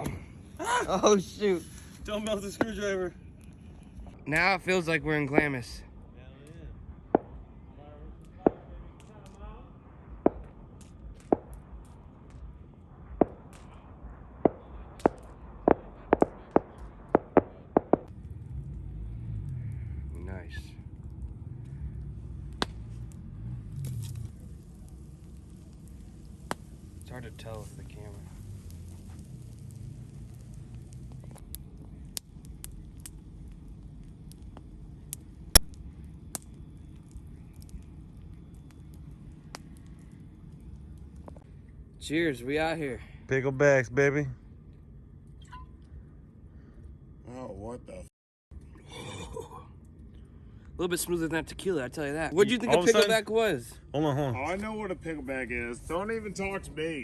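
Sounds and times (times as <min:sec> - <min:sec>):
low steady rumble: 0:00.0 - 0:57.0
sharp cracks of wood: 0:10.2 - 0:12.5, 0:13.1 - 0:18.3, 0:20.9 - 0:41.5.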